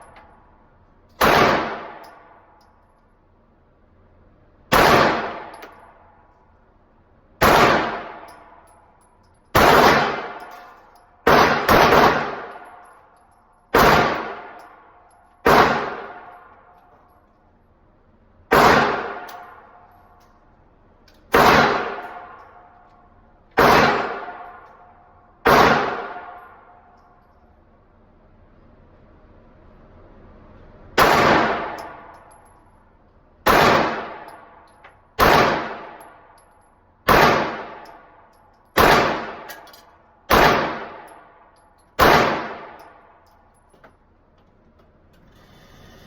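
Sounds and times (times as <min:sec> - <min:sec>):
gunshots: 0:01.2 - 0:02.0, 0:04.7 - 0:05.5, 0:07.4 - 0:08.3, 0:09.6 - 0:10.5, 0:11.2 - 0:12.6, 0:13.7 - 0:14.6, 0:15.4 - 0:16.3, 0:18.5 - 0:19.4, 0:21.3 - 0:22.3, 0:23.6 - 0:24.5, 0:25.4 - 0:26.4, 0:31.0 - 0:32.0, 0:33.4 - 0:34.3, 0:35.2 - 0:36.0, 0:37.1 - 0:37.8, 0:38.8 - 0:39.6, 0:40.3 - 0:41.1, 0:42.0 - 0:42.8.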